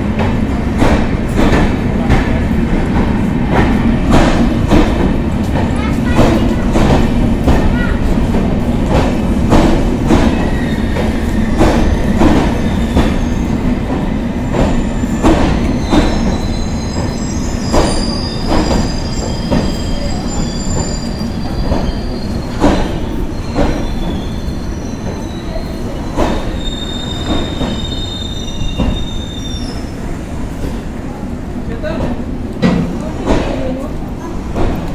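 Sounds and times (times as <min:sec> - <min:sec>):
steady train rumble: 0:00.0 - 0:34.9
train wheels clicking over rail joints: 0:00.1 - 0:25.2, 0:26.0 - 0:28.1
high wheel squeals: 0:14.7 - 0:30.0.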